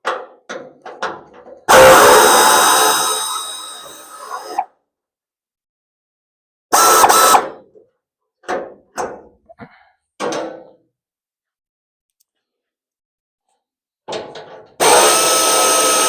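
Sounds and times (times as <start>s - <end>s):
power tool running: 1.7s - 4.6s, 6.8s - 7.5s, 14.8s - 16.0s.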